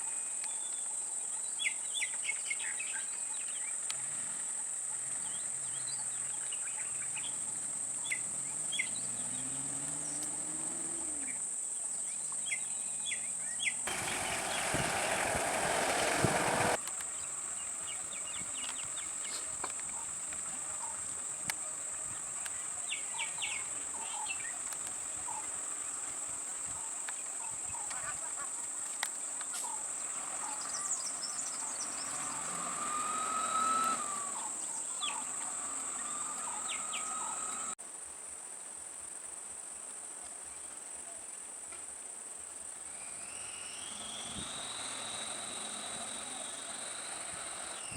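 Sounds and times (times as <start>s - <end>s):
insects droning: 0.0s - 47.9s
short bird calls: 29.6s - 37.8s.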